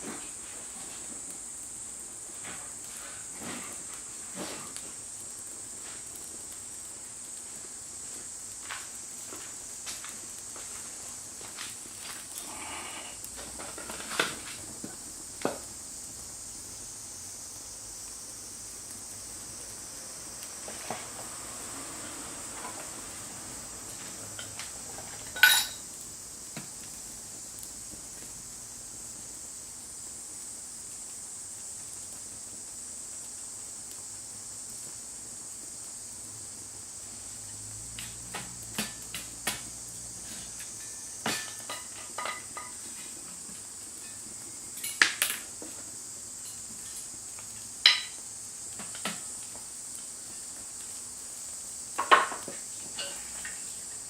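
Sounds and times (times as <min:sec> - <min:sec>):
steady high hiss: 0:00.0 - 0:54.0
metal cooking gear clinking: 0:25.3 - 0:25.8.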